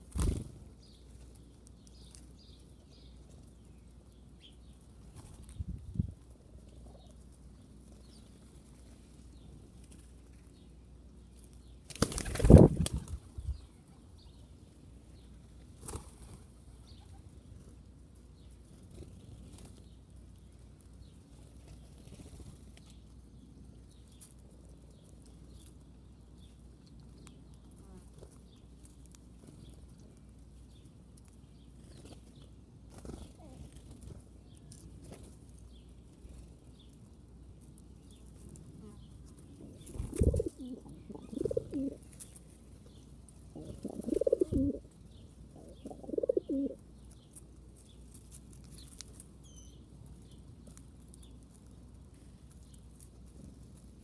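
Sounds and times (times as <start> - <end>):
bird wings flapping: 0.0 - 0.6, 11.8 - 13.3, 39.8 - 40.7
faint bird chirps: 16.8 - 17.4, 38.8 - 47.3, 49.4 - 50.4.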